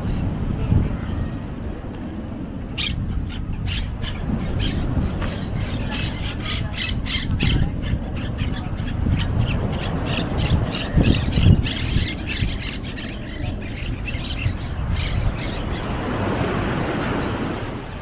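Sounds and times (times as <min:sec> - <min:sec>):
low outdoor rumble: 0:00.0 - 0:18.0
birds squawking chirps: 0:02.7 - 0:16.2.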